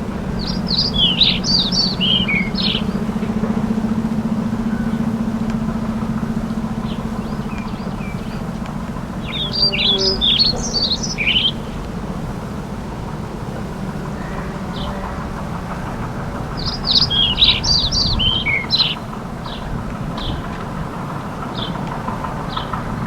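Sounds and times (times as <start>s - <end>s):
songbird warbling chirps: 0.0s - 4.0s, 4.6s - 11.9s, 16.5s - 20.5s
steady low hum: 0.0s - 23.0s.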